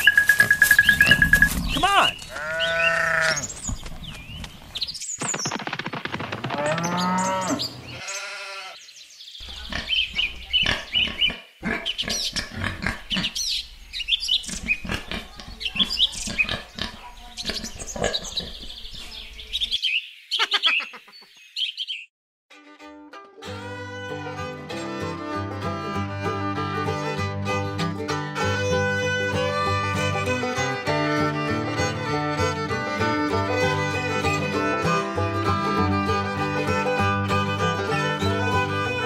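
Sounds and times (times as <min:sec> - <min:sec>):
high bird chirps: 0:00.0 - 0:05.6, 0:08.8 - 0:14.9, 0:15.5 - 0:22.1
animal calls: 0:20.3 - 0:21.3.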